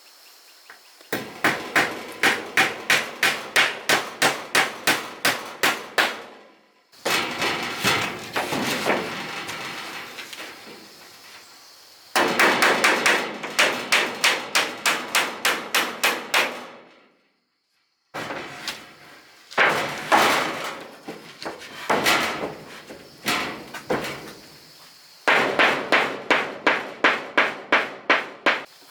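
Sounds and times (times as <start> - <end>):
hammer striking wood: 1.1 - 6.3, 12.2 - 16.6, 25.3 - 28.7.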